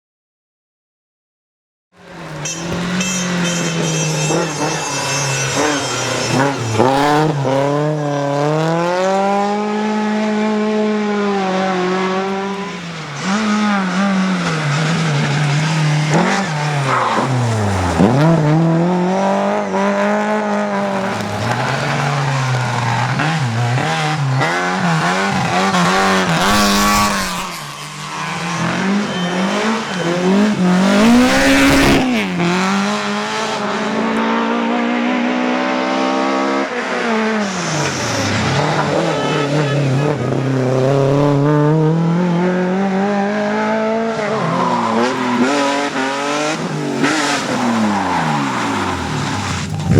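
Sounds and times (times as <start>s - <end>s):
rally car engine revving: 2.0s - 49.9s
tyre squeal: 2.2s - 8.9s, 12.1s - 33.1s, 37.3s - 41.5s, 44.0s - 49.9s.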